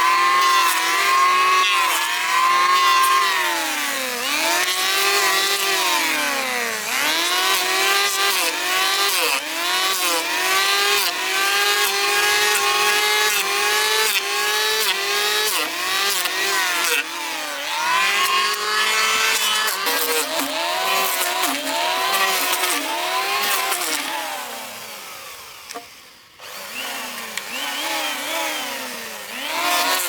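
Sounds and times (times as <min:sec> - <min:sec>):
power tool motor bogging: 0:14.7 - 0:30.0.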